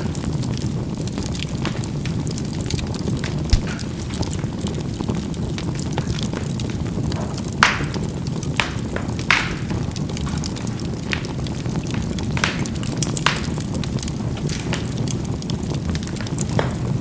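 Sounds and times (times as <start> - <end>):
charcoal fire crackling: 0.0 - 17.0
low rumble of flames: 0.0 - 17.0
sharp pops: 3.2 - 4.5, 7.1 - 17.0.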